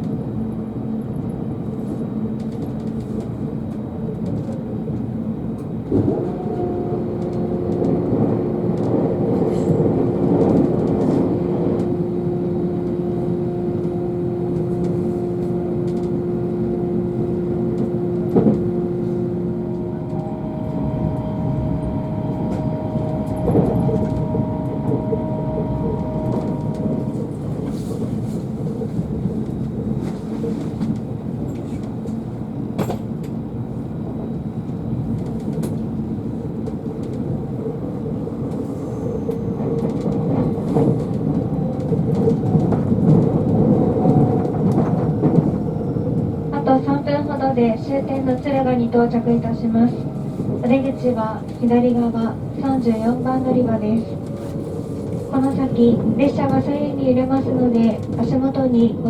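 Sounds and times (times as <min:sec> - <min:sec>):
train wheels rumbling on rails: 0:00.0 - 0:59.0
held tone: 0:09.3 - 0:27.4.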